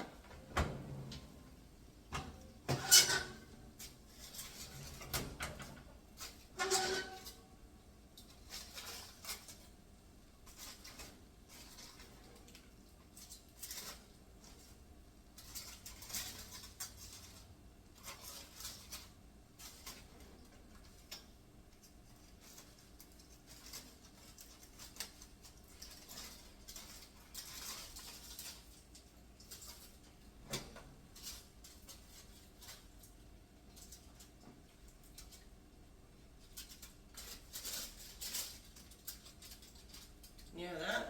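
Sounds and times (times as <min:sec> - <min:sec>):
dishes and lids clattering: 0:02.1 - 0:05.7.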